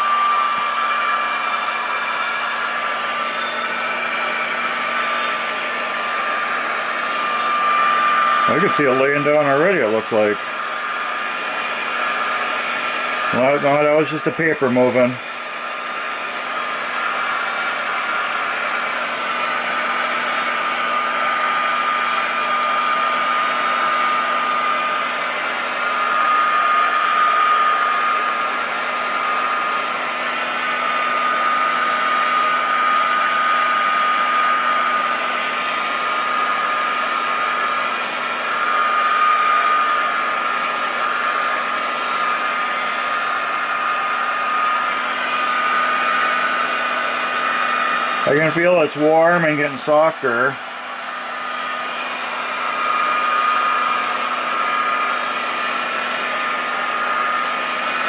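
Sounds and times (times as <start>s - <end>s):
heat gun fan whine: 0.0s - 58.0s.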